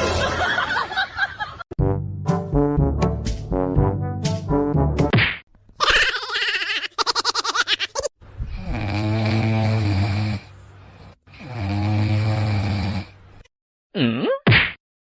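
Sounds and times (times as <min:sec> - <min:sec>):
pet snoring loudly: 0:08.5 - 0:13.2.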